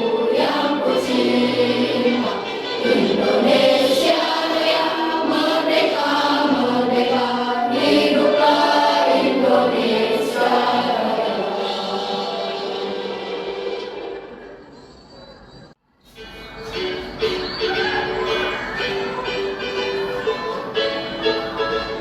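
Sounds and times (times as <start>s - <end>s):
choir singing: 0.0s - 14.9s.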